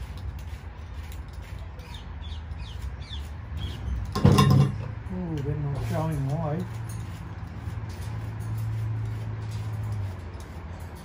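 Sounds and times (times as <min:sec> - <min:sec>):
small birds chirping: 0:01.5 - 0:04.1.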